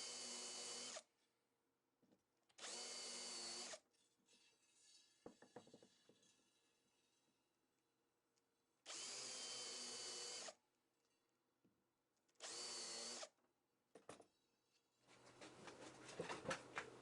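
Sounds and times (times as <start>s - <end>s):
power drill whining: 0.0s - 1.0s, 2.6s - 3.8s, 8.9s - 10.6s, 12.4s - 13.3s.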